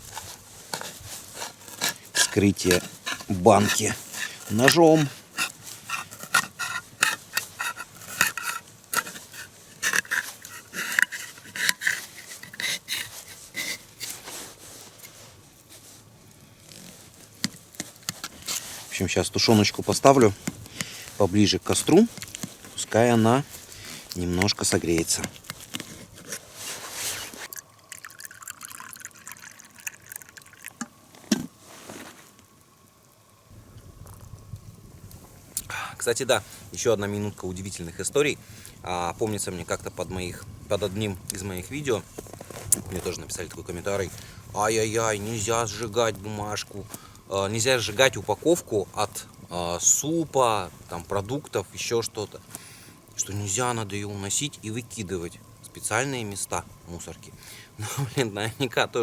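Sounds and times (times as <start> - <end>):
knife opening tin can: 0.7 - 14.2
liquid bubbling and trickling: 27.4 - 31.1.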